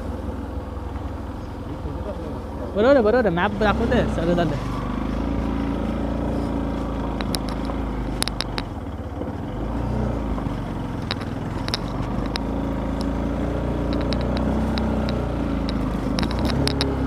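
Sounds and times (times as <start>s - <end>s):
motorcycle engine running: 0.0s - 17.0s
sharp clicks: 7.1s - 8.8s, 11.0s - 13.2s, 13.8s - 17.0s.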